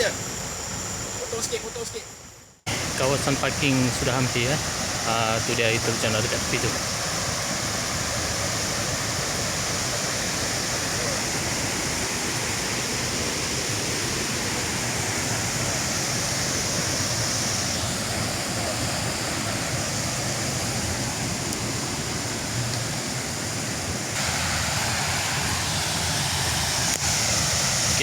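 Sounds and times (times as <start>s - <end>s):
river water flowing: 2.7s - 28.0s.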